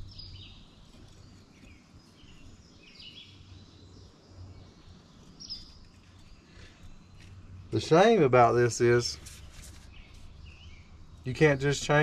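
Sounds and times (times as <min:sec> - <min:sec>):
bird chirps: 0:00.0 - 0:12.0.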